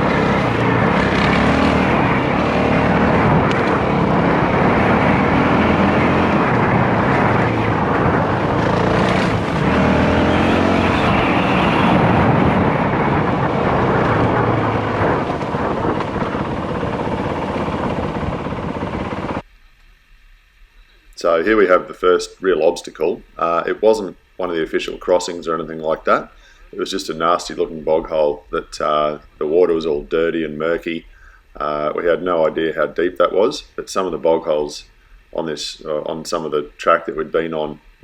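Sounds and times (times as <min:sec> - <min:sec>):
dirt bike engine running: 0:00.0 - 0:19.4
wind noise: 0:00.0 - 0:19.4.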